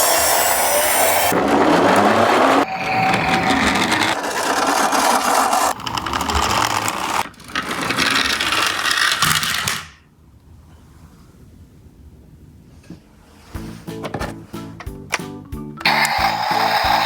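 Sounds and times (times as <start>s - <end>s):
toy cars rattling: 0.0s - 10.0s, 15.8s - 17.0s.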